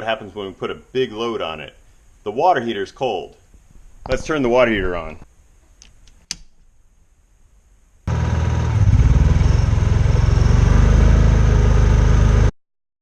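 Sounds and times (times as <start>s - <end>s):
generator engine running: 8.1s - 12.5s.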